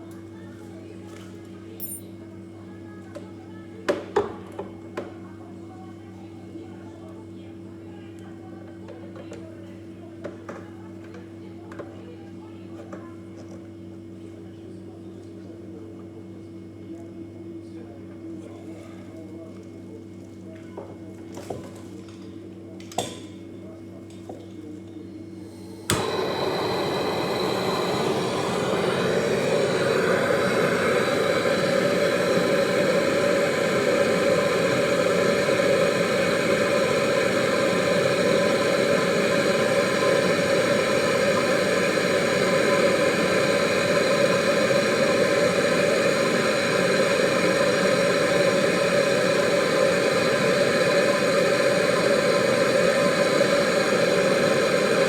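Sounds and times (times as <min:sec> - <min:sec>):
machine droning: 0:25.5 - 0:55.0.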